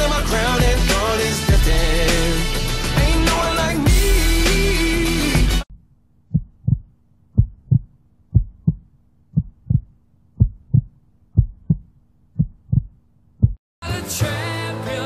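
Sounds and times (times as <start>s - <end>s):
heartbeat thumps: 6.3s - 13.6s.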